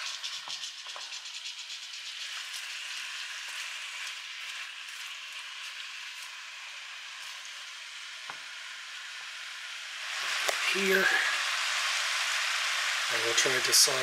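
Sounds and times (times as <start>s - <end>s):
spatula stirring: 0.0s - 7.6s
meat and onion sizzling in a pan: 0.0s - 14.0s.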